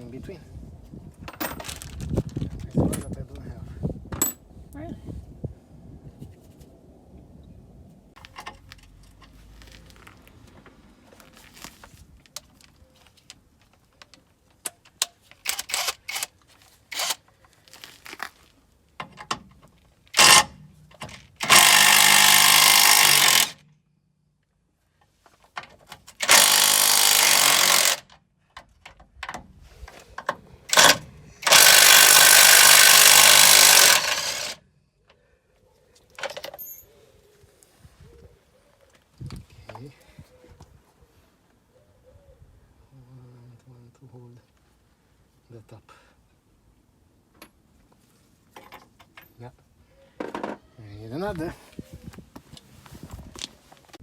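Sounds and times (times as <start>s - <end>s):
impact wrench bursts: 15.4s - 16.3s, 16.9s - 17.2s, 20.1s - 23.6s, 26.2s - 28.1s, 30.7s - 34.6s.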